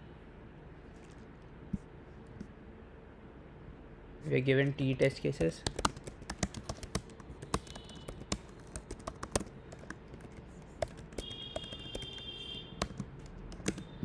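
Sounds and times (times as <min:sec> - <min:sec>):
keyboard typing clicks: 0:04.7 - 0:14.0.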